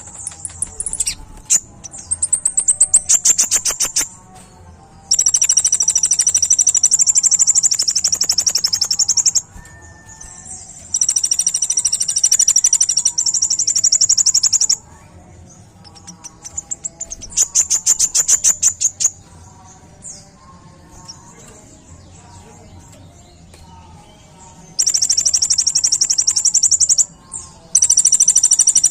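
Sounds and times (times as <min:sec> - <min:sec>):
bird singing high trills: 0:05.1 - 0:15.1, 0:24.6 - 0:28.9.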